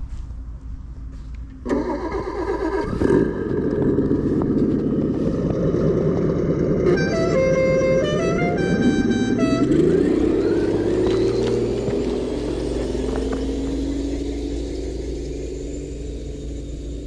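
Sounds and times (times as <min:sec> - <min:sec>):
engine starting and running: 0:00.0 - 0:17.0
clear tones stepping in pitch: 0:06.8 - 0:15.1.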